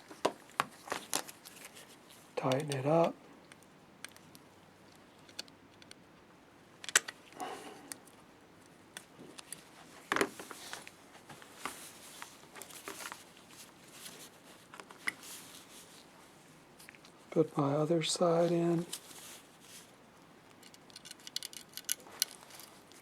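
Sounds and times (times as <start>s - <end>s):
screwdriver handling noises: 0.9s - 6.0s, 20.5s - 23.0s.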